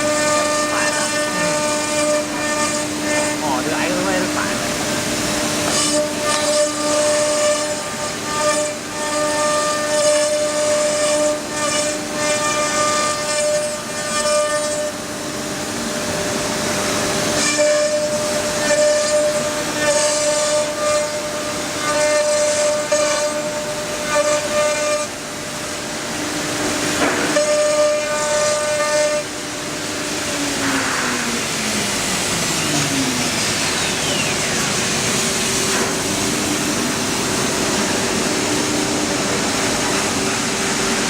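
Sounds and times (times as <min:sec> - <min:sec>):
router spindle whining: 0:00.0 - 0:12.1.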